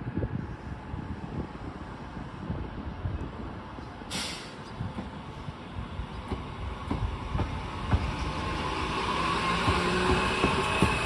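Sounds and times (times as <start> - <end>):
train pulling away: 7.0 - 11.0.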